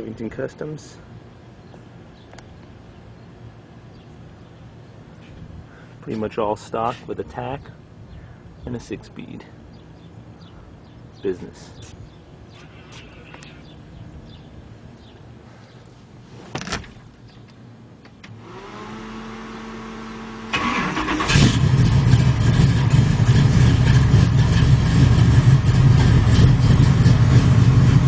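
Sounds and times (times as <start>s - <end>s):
starter motor whine: 18.2s - 22.6s
car engine idling: 20.2s - 28.0s.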